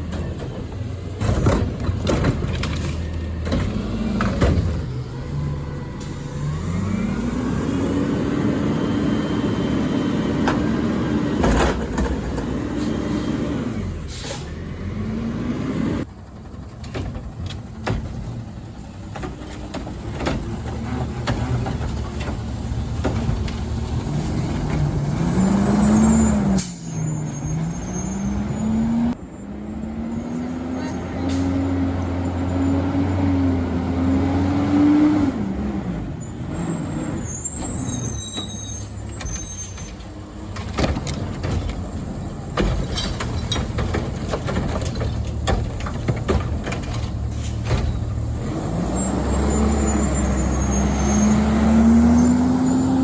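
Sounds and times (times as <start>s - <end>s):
garbage truck engine revving: 0.0s - 16.1s, 18.2s - 53.0s
air-brake hisses: 14.1s - 14.5s
sharp knocks and clatter: 40.0s - 48.2s.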